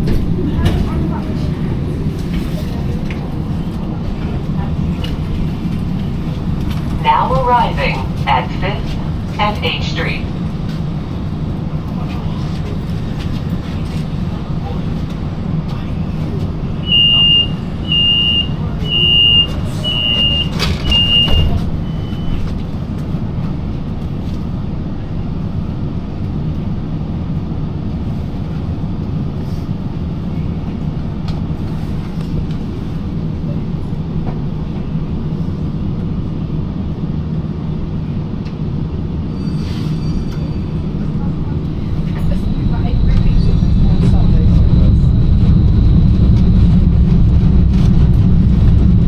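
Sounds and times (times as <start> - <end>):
tram low hum: 0.0 - 49.0
tram door warning beeps: 16.8 - 22.6, 40.2 - 47.4.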